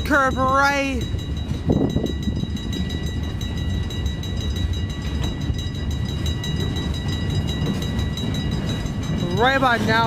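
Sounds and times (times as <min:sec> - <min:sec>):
freight train rumbling: 0:00.0 - 0:10.0.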